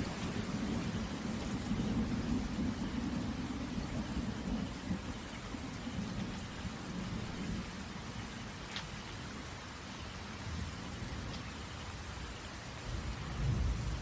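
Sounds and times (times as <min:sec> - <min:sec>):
low rumble of thunder: 0:00.0 - 0:08.6, 0:12.8 - 0:14.0
rain falling on a tent: 0:00.0 - 0:14.0.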